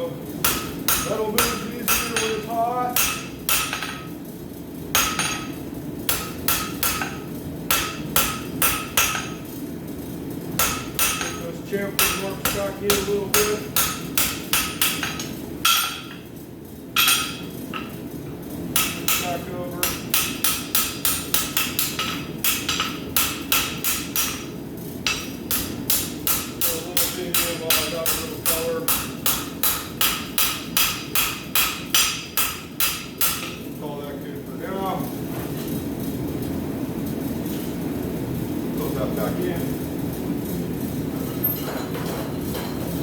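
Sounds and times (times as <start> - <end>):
hammer striking steel on anvil: 0.4 - 4.1, 5.0 - 9.4, 10.6 - 16.2, 17.0 - 17.9, 18.8 - 33.6.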